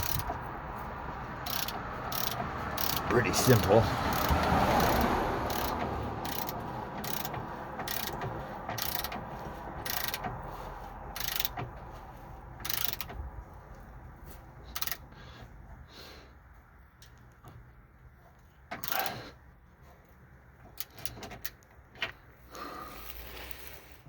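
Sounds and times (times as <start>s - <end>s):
ratchet wrench clicking: 0.0s - 0.5s, 1.4s - 10.4s, 11.1s - 11.7s, 12.6s - 13.2s, 14.7s - 15.1s, 18.7s - 19.2s, 20.7s - 21.7s.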